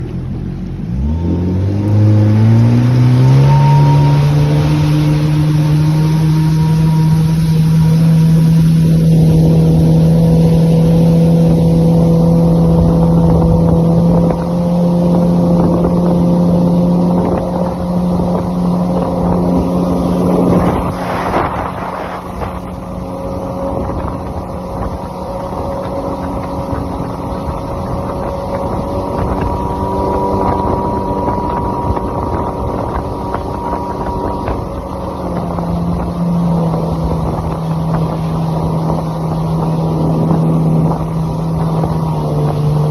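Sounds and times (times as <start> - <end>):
jet ski engine running: 0.0 - 42.9
short rush of noise: 19.6 - 23.2.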